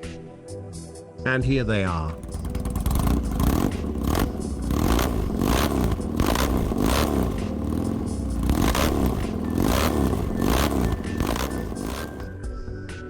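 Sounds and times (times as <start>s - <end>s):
motorcycle engine revving: 2.1s - 12.4s.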